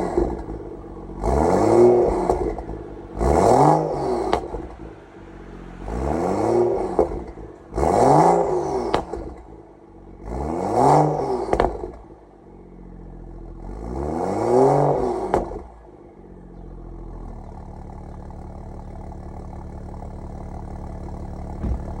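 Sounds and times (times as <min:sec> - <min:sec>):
exhaust cracks: 0:00.0 - 0:10.2, 0:17.3 - 0:22.0
car engine revving and idling: 0:00.0 - 0:22.0.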